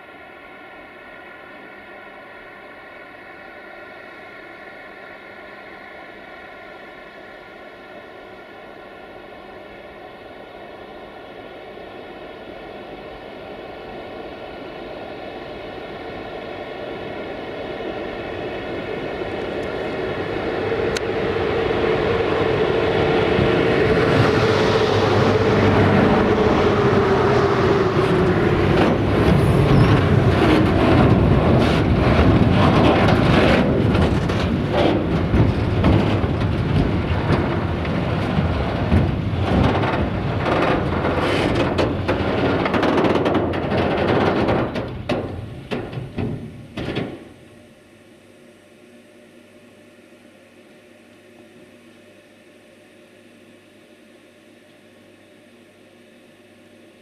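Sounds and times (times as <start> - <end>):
electric locomotives passing: 0.0 - 47.8
wheels clicking on rails: 19.0 - 47.4
wagons rumbling: 19.9 - 47.4.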